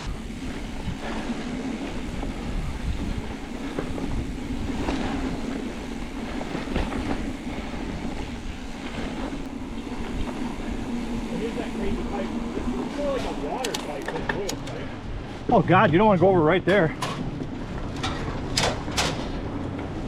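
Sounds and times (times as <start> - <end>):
bike knocks and rattles: 0.0 - 9.4, 13.0 - 14.8, 16.6 - 20.0
tyres rumbling on dirt and rock: 0.0 - 20.0.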